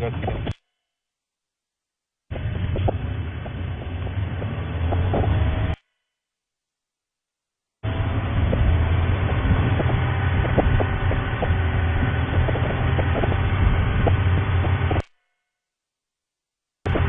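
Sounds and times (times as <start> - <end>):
vehicle engine rumble and road noise: 0.0 - 0.6, 2.3 - 5.8, 7.8 - 15.1.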